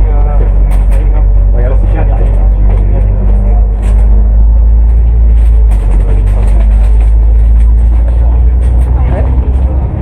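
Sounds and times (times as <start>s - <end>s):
bus diesel engine droning: 0.0s - 10.0s.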